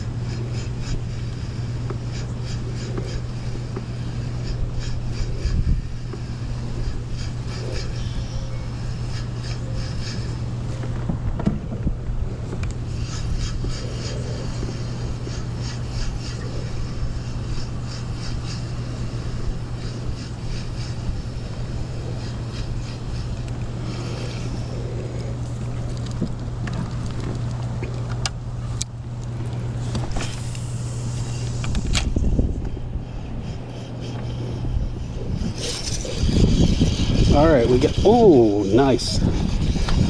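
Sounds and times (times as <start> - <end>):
electric motor humming: 29.4 - 40.0.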